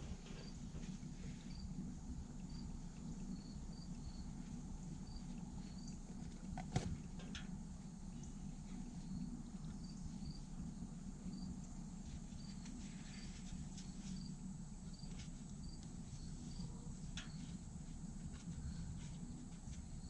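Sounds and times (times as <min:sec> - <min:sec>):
low steady rumble: 0:00.0 - 0:20.0
high insect chirps: 0:01.5 - 0:06.1.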